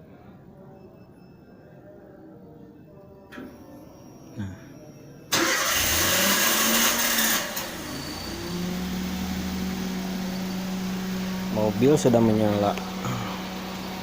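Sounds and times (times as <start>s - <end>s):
car engine starting and idling: 5.3s - 14.0s.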